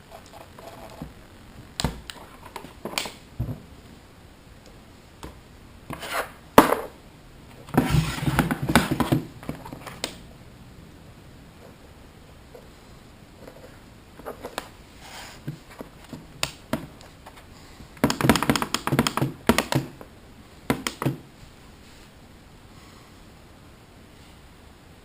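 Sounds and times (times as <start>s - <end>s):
scraping and rubbing: 5.9s - 6.4s, 7.6s - 10.0s.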